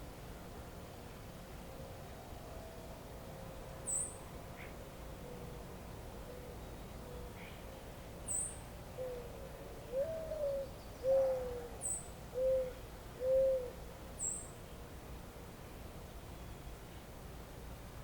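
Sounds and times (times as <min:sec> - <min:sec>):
faint steady hiss: 0:00.0 - 0:18.0
bird low hooting calls: 0:08.3 - 0:14.4.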